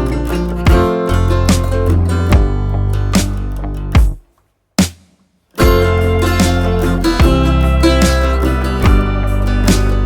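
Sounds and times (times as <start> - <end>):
acoustic guitar strumming: 0.0 - 4.2, 5.5 - 10.0
steady beat: 0.7 - 10.0.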